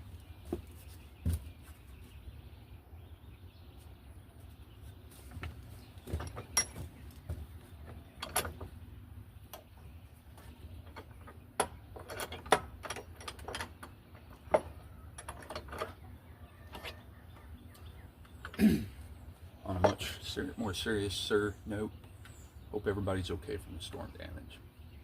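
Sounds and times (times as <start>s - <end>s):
tools and wood clicking: 6.1s - 7.2s, 7.8s - 8.8s, 9.4s - 18.6s.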